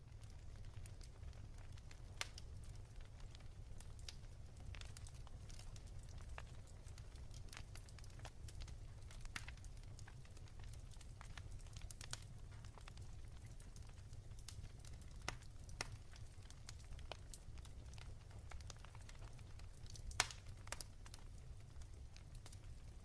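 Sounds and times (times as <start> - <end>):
firewood crackling in a fireplace: 0.0 - 23.0.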